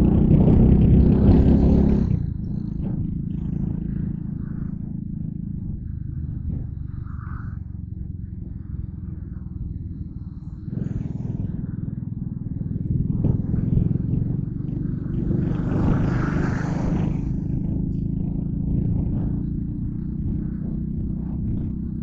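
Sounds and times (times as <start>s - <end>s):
motorcycle engine running: 0.0s - 22.0s
wind rush or road hiss: 9.8s - 17.8s.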